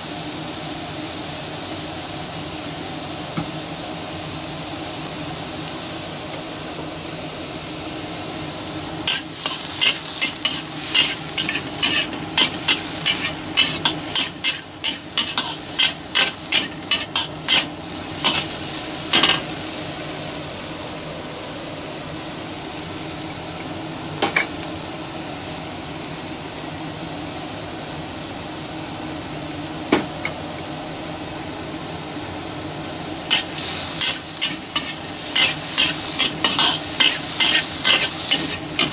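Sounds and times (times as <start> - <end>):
vegetables sizzling in hot oil: 0.0 - 38.9
spatula scraping a pan: 9.1 - 18.6, 33.3 - 38.9.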